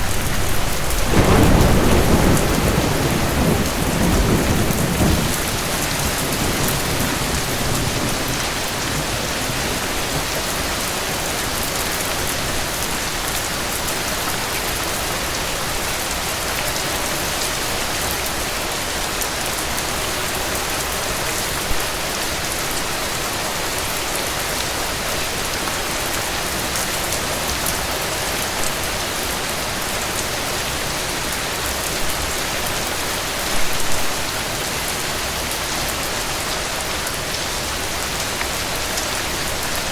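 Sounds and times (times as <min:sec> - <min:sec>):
thunder rumble: 0:00.0 - 0:12.6
rain pattering: 0:00.0 - 0:39.9.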